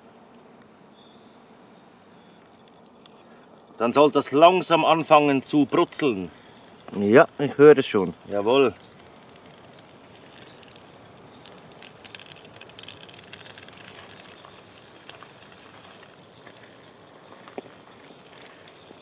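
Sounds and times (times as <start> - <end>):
small crackles: 4.3 - 19.0
vegetables sizzling in a pan: 5.0 - 19.0.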